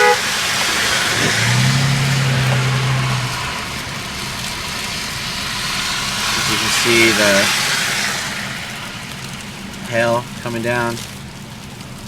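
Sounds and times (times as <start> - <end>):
car road noise: 0.0 - 12.0
low steady drone: 0.7 - 6.7.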